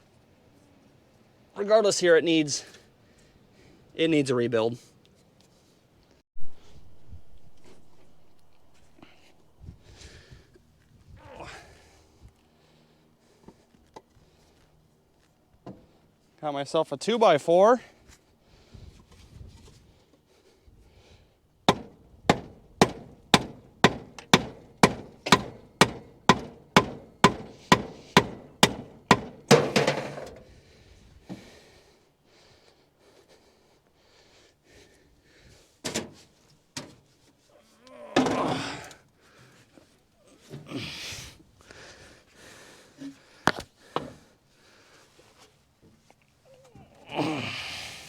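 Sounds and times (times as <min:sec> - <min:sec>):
hammer blows on wood: 0:21.7 - 0:30.4
wood knocking on metal: 0:21.7 - 0:30.4
breathy huff: 0:40.4 - 0:45.0, 0:47.1 - 0:48.0.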